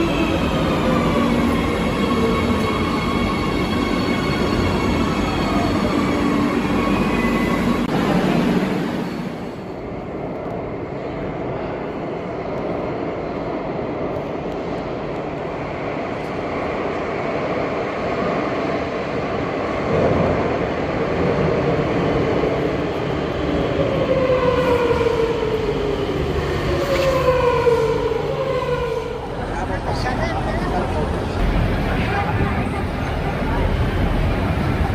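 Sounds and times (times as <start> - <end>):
electric train rumbling: 0.0 - 34.9.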